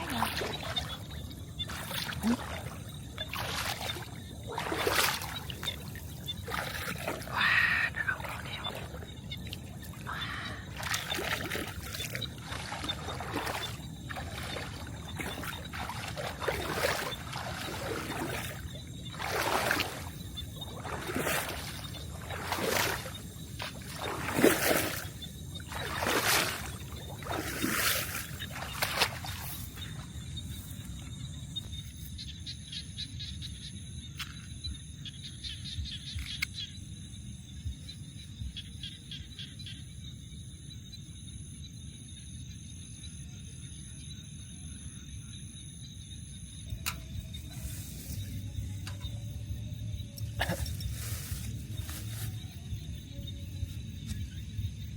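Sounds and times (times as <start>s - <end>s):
water splashing swooshes: 0.0s - 30.0s.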